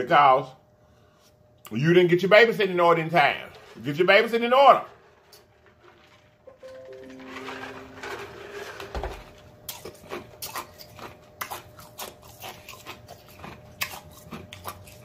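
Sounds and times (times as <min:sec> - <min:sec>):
chewing with lip-smacking: 0:09.7 - 0:15.0.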